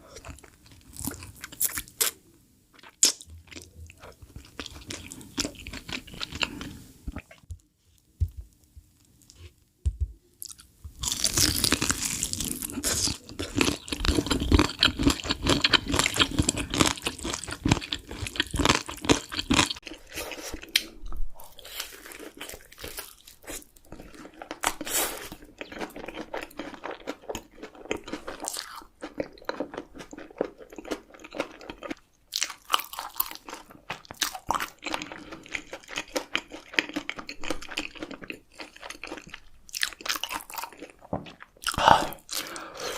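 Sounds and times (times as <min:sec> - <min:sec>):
crunchy chewing: 0:10.4 - 0:42.6.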